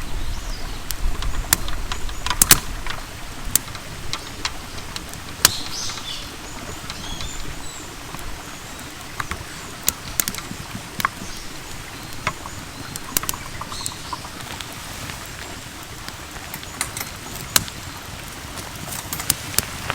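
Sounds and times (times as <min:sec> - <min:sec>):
small birds chirping: 0:00.0 - 0:19.9
irregular sharp clicks: 0:00.8 - 0:07.5, 0:08.1 - 0:14.8.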